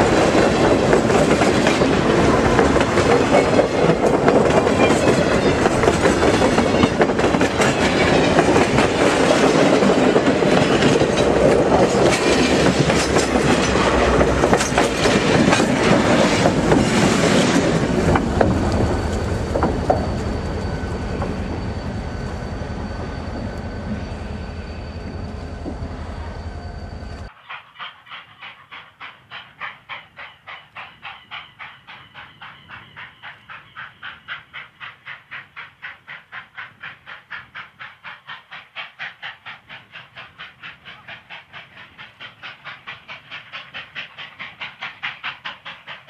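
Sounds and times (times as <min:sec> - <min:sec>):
train wheels clattering: 0:00.0 - 0:21.9, 0:27.3 - 0:46.0
thin high whine: 0:18.7 - 0:27.3.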